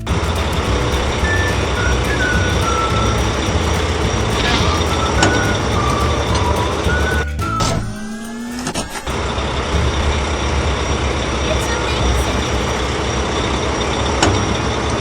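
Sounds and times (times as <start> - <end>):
heavy vehicle engine rumbling: 0.0 - 15.0.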